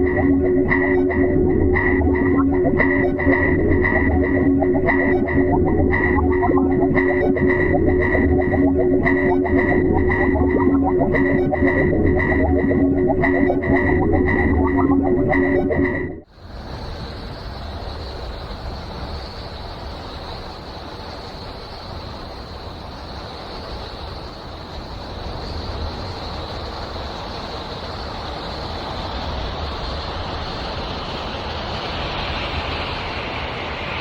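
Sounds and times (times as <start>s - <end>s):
thin high whine: 0.0s - 16.2s.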